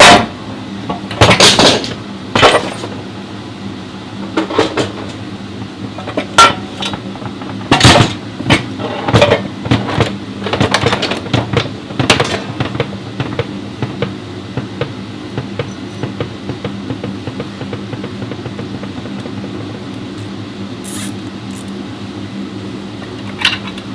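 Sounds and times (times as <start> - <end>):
metal tools clanking: 7.7 - 9.4
steady hum: 9.1 - 23.9.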